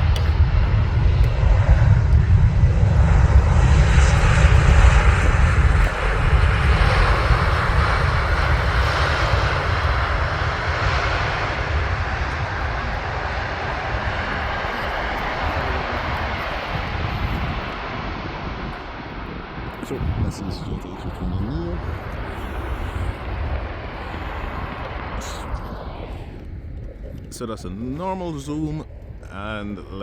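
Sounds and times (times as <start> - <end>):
jet airliner engine rumble: 0.0 - 30.0.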